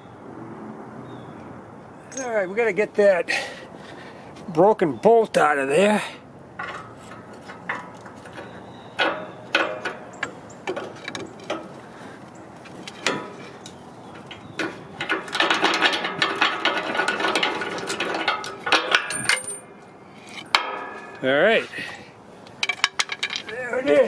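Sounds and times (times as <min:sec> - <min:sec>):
metal knocks: 0:06.6 - 0:11.7, 0:12.7 - 0:19.8, 0:20.4 - 0:21.2, 0:22.6 - 0:24.0.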